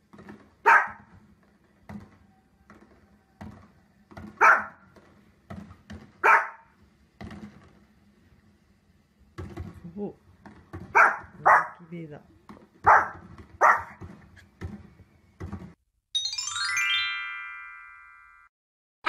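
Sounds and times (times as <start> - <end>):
fireworks pops and thuds on television: 0.0 - 6.2, 6.9 - 8.0, 9.3 - 11.4
small dog barking: 0.6 - 1.1, 4.4 - 4.8, 6.2 - 6.7, 10.9 - 11.9, 12.8 - 14.0.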